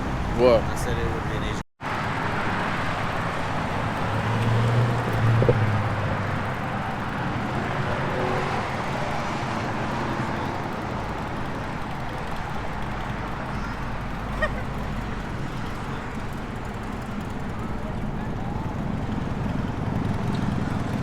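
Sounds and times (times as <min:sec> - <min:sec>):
outdoor background noise: 0:00.0 - 0:21.0
car engine running: 0:04.8 - 0:08.2.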